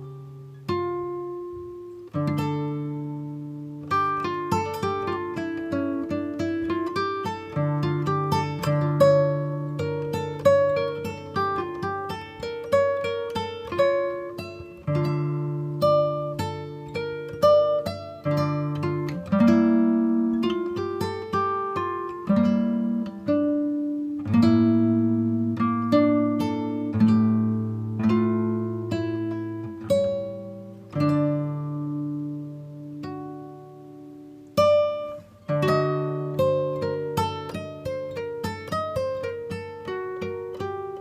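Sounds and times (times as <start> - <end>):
plucked acoustic guitar: 0.0 - 41.0.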